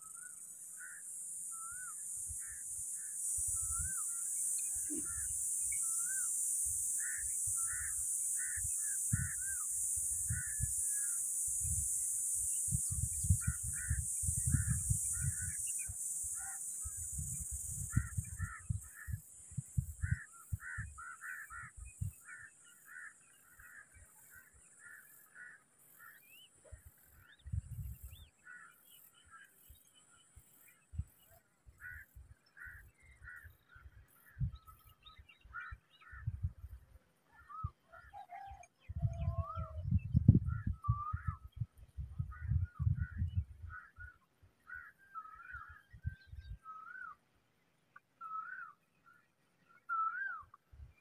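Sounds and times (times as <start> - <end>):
steady high hiss: 0.0 - 27.2.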